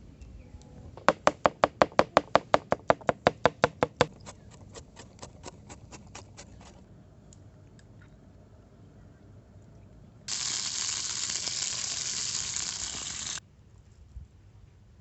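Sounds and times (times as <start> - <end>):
knife chopping on cutting board: 1.0 - 6.7.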